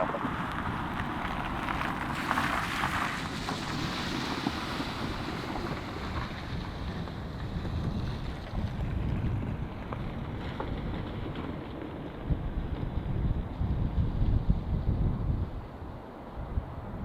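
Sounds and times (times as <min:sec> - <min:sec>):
steady low rumble: 0:00.0 - 0:01.8
wind buffeting microphone: 0:00.0 - 0:17.0.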